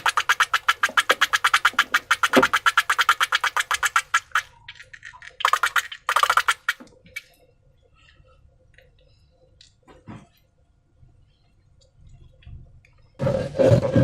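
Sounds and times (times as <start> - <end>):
slime clicking and squelching: 0.0 - 7.3.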